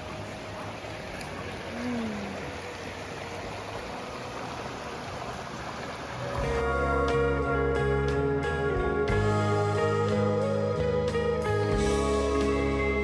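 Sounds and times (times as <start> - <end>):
rushing water: 0.0 - 13.0
gentle guitar music: 0.6 - 13.0.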